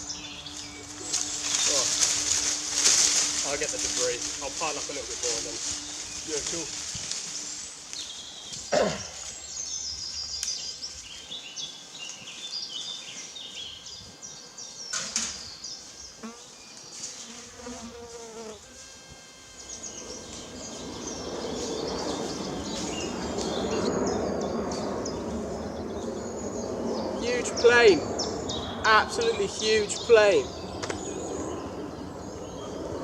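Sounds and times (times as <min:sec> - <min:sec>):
aircraft rumble overhead: 0:00.0 - 0:12.2, 0:19.5 - 0:33.0
birds chirping and singing: 0:00.0 - 0:18.5, 0:19.2 - 0:33.0.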